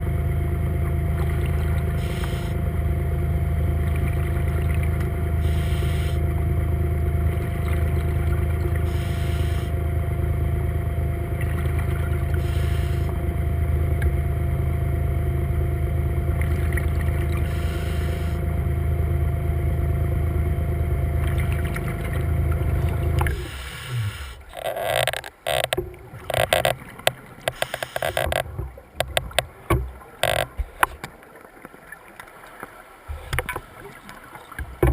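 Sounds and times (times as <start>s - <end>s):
underwater scooter motor humming: 0.0s - 34.9s
clicks underwater: 21.2s - 34.9s.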